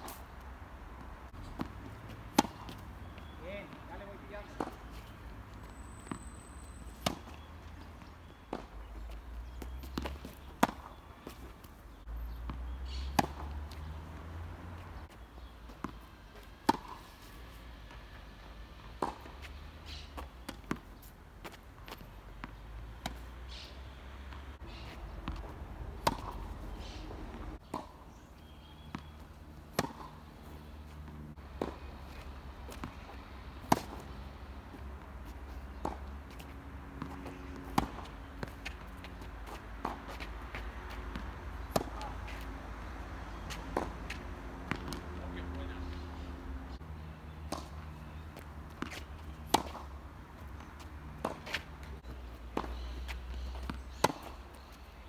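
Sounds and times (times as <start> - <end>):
tennis ball bouncing: 0.0 - 55.0
tennis racket hitting ball: 1.3 - 6.2, 12.3 - 16.0, 23.0 - 28.0, 28.9 - 46.4, 47.3 - 54.6.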